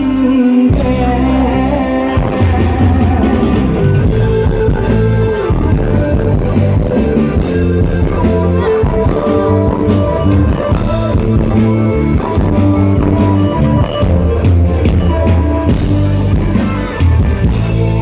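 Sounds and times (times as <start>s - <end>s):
person singing: 0.0s - 14.3s
live band music: 0.0s - 18.0s.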